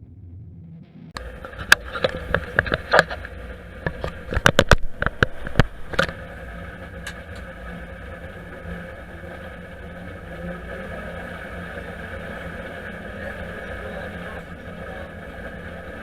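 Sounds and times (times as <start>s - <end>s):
combine harvester machine hum: 0.0s - 16.0s
sharp clicks and knocks: 1.2s - 6.2s.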